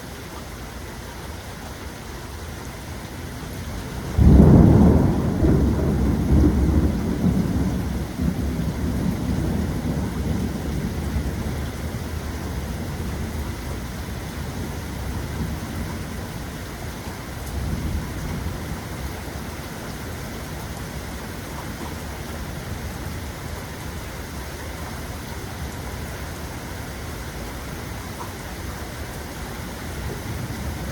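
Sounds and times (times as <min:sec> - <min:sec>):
steady rain: 0:00.0 - 0:30.9
thunder rumbling: 0:04.0 - 0:16.5, 0:29.8 - 0:30.9.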